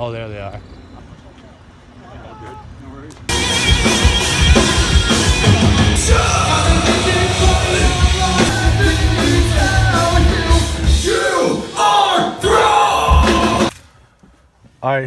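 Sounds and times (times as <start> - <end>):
rock band playing: 3.3 - 13.7
singer yelling vocals: 4.5 - 13.7.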